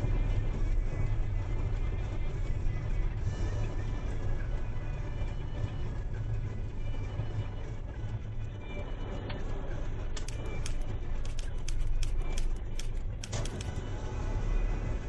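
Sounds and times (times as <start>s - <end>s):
sharp ticks and clicks: 10.2s - 13.8s.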